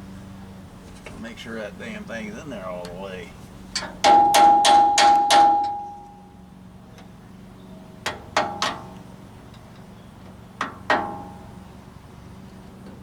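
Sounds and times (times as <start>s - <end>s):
hammer striking metal: 3.8s - 6.2s.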